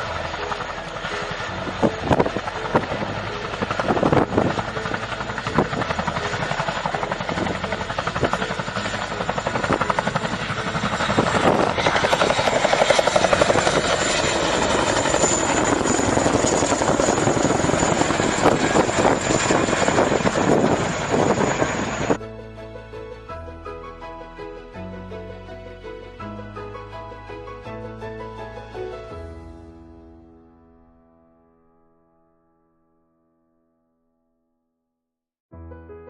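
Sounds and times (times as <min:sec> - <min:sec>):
helicopter turbine whine: 0:00.0 - 0:23.1.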